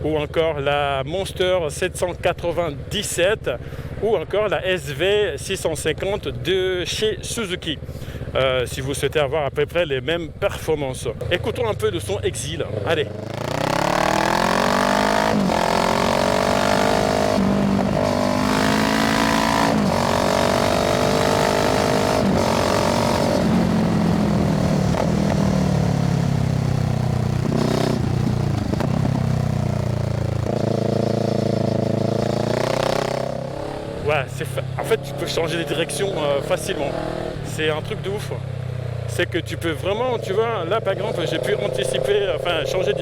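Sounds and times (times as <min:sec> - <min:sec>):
motorcycle engine accelerating: 0:10.2 - 0:43.0.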